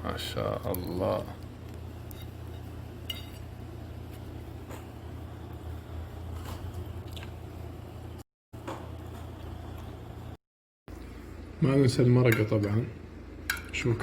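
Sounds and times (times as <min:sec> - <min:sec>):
steady low hum: 0:00.0 - 0:14.0
person chewing soft food: 0:06.2 - 0:07.6.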